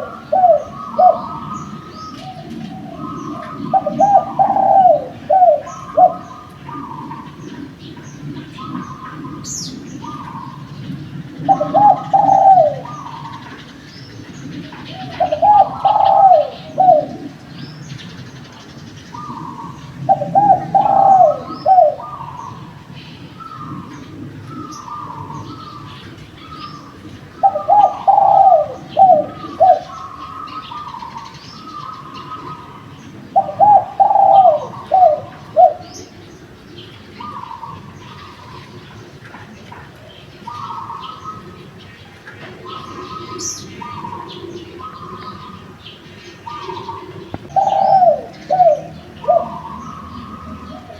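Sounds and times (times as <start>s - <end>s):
fainter higher dove cooing: 0.0s - 7.4s, 11.4s - 13.6s, 14.6s - 17.6s, 19.1s - 22.8s, 23.5s - 31.2s, 31.9s - 36.2s, 46.4s - 50.9s
dove cooing: 0.0s - 50.9s
small birds chirping: 0.0s - 50.9s.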